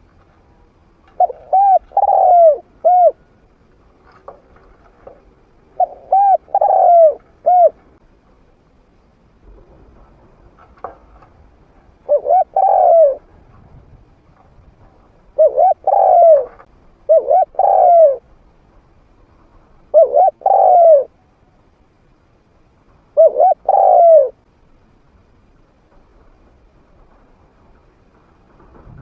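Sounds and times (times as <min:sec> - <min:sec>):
dove cooing: 0:01.1 - 0:03.4, 0:04.1 - 0:07.9, 0:12.0 - 0:13.4, 0:15.3 - 0:18.2, 0:19.9 - 0:21.2, 0:23.2 - 0:24.4.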